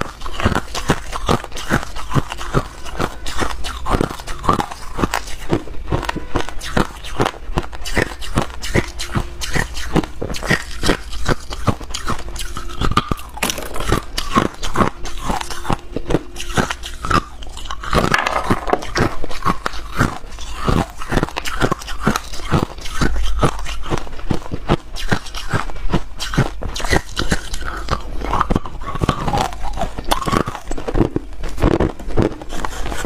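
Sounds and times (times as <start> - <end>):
person crunching ice: 12.9 - 15.4.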